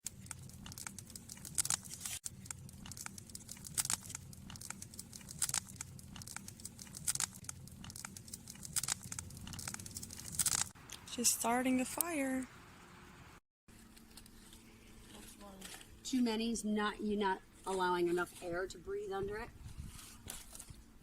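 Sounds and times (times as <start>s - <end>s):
crinkling of kindling and paper: 0.0s - 10.8s, 13.7s - 16.2s, 17.6s - 21.0s.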